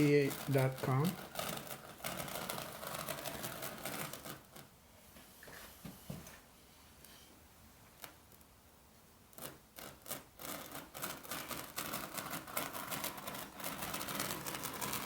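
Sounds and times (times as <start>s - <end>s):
scraping and rubbing on carpet: 0.0s - 7.2s, 9.3s - 15.0s.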